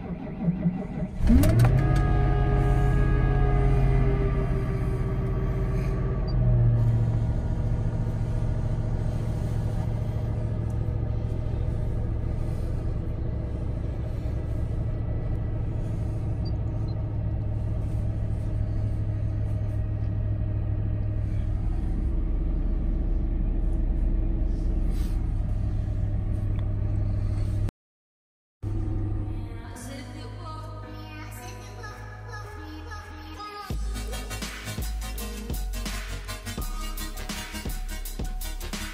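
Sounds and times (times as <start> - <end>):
car engine idling: 0.0 - 27.7.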